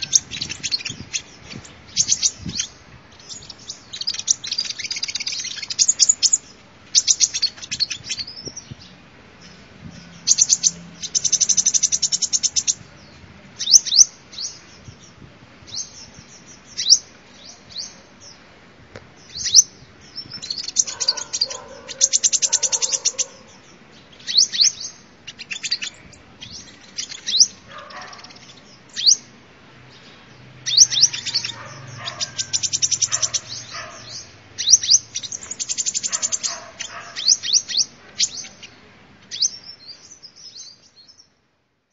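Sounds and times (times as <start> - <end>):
bird rattling trills: 0.0 - 6.4, 20.4 - 23.5, 30.8 - 37.4
bird song with chirps: 0.0 - 18.5, 19.1 - 41.4.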